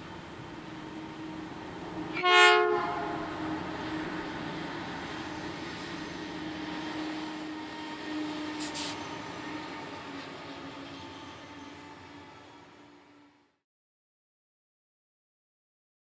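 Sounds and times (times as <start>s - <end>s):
trains rumbling past: 0.0s - 13.6s
multi-tone train horn blast: 0.9s - 4.6s, 6.1s - 13.4s
brief high hiss: 8.5s - 9.1s.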